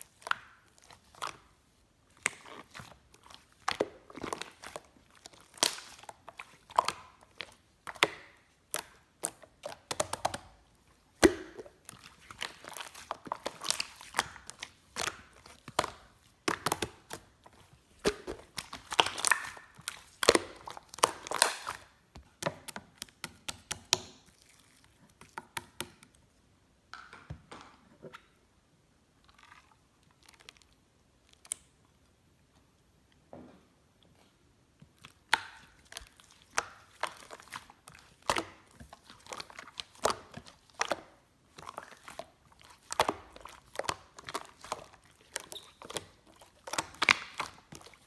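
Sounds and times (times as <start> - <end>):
slime crackling and popping: 2.1 - 24.8, 35.1 - 48.0.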